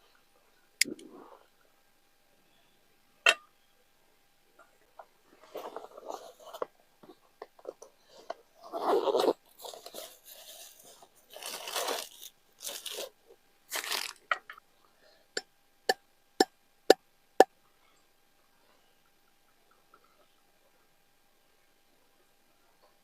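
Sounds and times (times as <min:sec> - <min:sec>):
crunching tearing rustles: 0:08.6 - 0:14.3.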